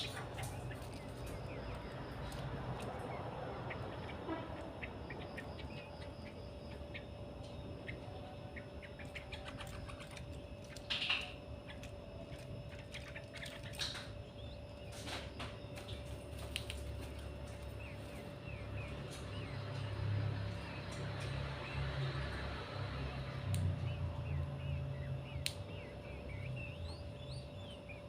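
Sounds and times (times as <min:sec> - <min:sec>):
bulbuls chirping: 0:00.0 - 0:28.0
faint steady hum: 0:00.0 - 0:28.0
loud bird calls: 0:00.0 - 0:28.0
bird clicks: 0:09.1 - 0:14.2, 0:23.4 - 0:23.8, 0:25.4 - 0:25.8.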